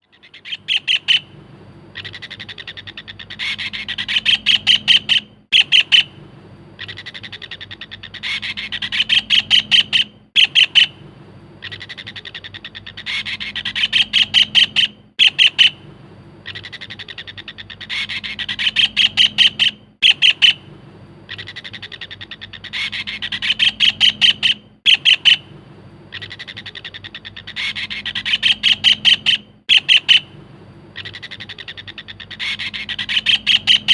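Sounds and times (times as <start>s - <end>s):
kingfisher rattling trill call: 0.0s - 1.4s, 2.0s - 6.2s, 6.8s - 11.0s, 11.6s - 15.8s, 16.4s - 20.7s, 21.3s - 25.5s, 26.1s - 30.4s, 31.0s - 33.9s.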